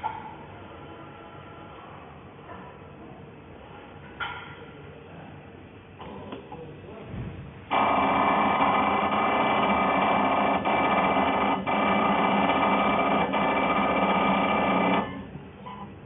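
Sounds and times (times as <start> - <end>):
machine running with steady tones: 7.7 - 16.0.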